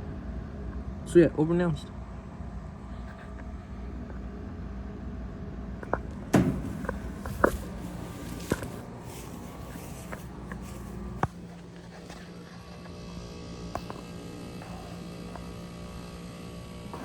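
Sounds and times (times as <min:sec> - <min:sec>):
low machine hum with rumble: 0:00.0 - 0:17.0.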